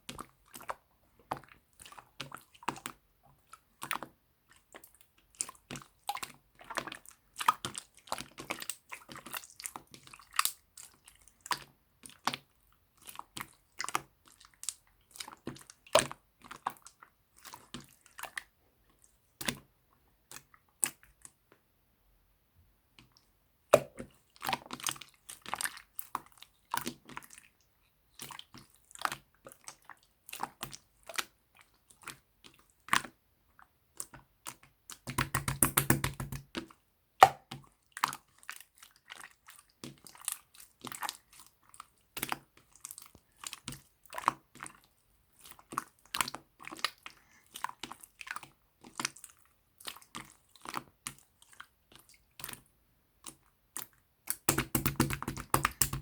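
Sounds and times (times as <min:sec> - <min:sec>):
slime squeezed sticky clicks: 0:54.3 - 0:56.0.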